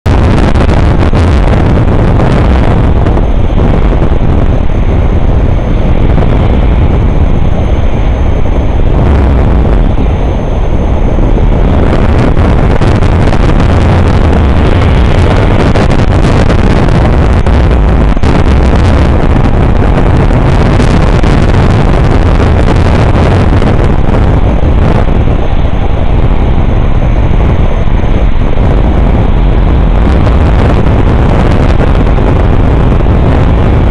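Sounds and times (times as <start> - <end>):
wind blasting microphone: 0.0 - 33.9.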